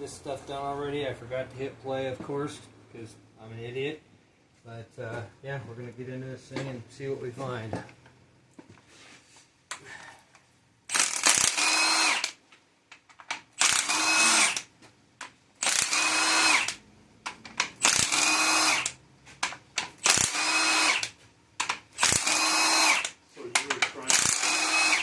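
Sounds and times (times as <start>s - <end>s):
power drill bursts: 10.9s - 12.4s, 13.6s - 14.7s, 15.6s - 16.8s, 17.8s - 19.0s, 20.0s - 21.2s, 21.9s - 23.2s, 24.0s - 25.0s.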